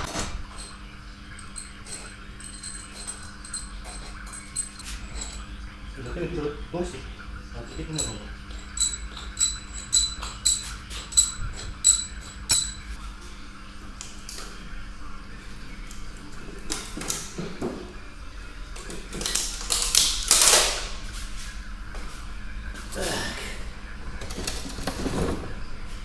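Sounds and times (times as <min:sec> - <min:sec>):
ringing metallic clinks: 0:00.5 - 0:06.2, 0:07.6 - 0:12.9
metal parts scraping and clattering: 0:01.4 - 0:05.5, 0:07.7 - 0:12.9, 0:24.2 - 0:25.6.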